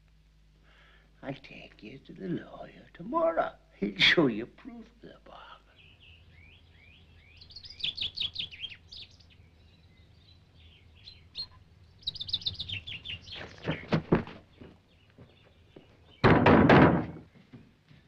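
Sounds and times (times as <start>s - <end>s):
birds chirping and singing: 5.3s - 16.4s
dull thuds: 13.3s - 18.0s.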